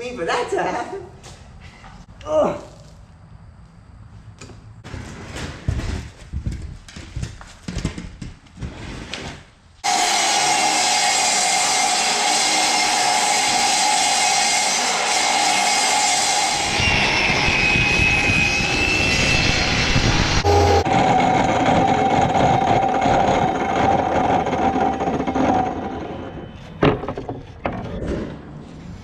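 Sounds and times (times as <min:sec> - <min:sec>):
electric saw cutting wood: 0:09.8 - 0:26.4.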